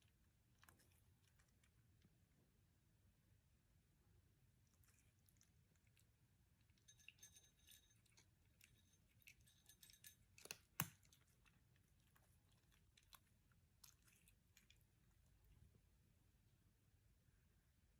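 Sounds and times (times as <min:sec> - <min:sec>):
cat crunching food: 0:00.0 - 0:02.3, 0:04.5 - 0:15.7
food clinking against bowl: 0:06.8 - 0:10.9.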